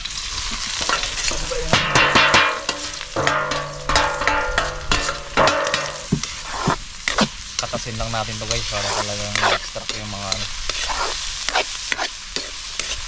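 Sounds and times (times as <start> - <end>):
food sizzling in hot oil: 0.0 - 13.0
metal spatula scraping wok: 0.2 - 13.0.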